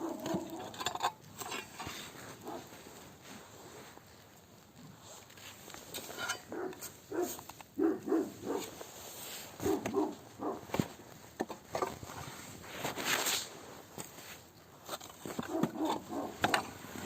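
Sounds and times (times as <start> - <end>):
dog barking: 0.0 - 0.7, 2.4 - 2.7, 6.4 - 8.7, 9.6 - 10.7, 15.5 - 16.4.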